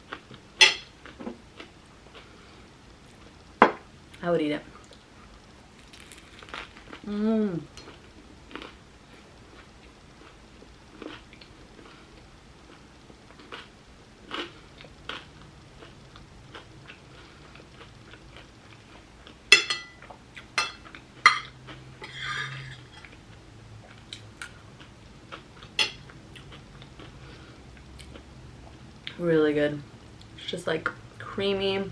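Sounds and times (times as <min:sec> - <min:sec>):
crunching and chewing food: 0:04.8 - 0:29.2
person humming mmm: 0:07.0 - 0:07.8.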